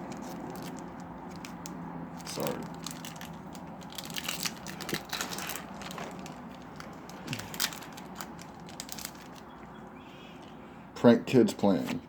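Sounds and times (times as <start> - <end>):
foil wrapper crinkling and tearing: 0.0 - 9.7.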